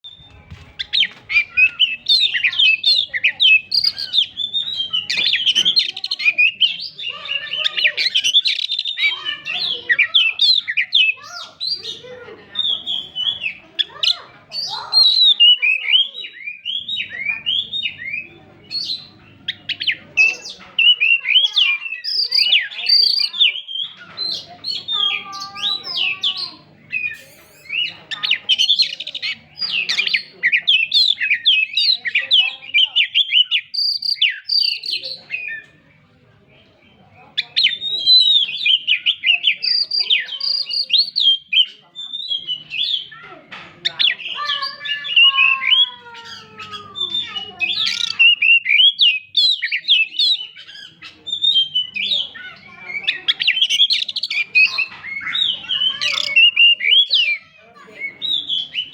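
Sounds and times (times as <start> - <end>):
bird singing whistles and chirps: 43.8 - 57.4.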